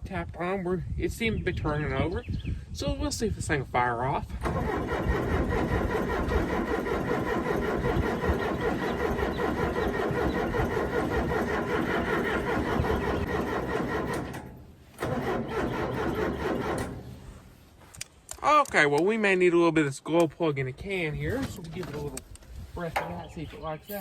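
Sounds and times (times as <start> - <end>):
diesel engine cranking on starter: 4.3 - 17.6.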